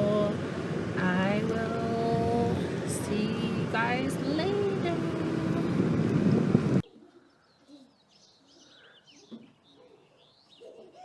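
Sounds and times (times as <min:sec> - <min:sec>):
car road and engine noise: 0:00.0 - 0:06.8.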